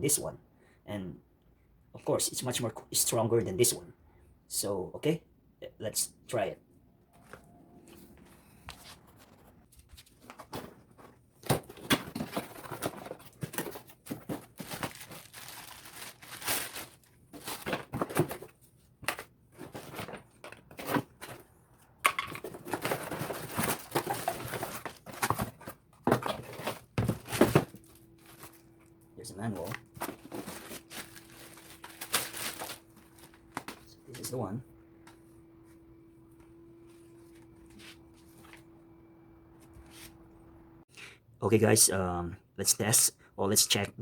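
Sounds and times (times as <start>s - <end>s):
packaging tearing and crinkling: 12.2s - 17.8s, 30.1s - 33.4s.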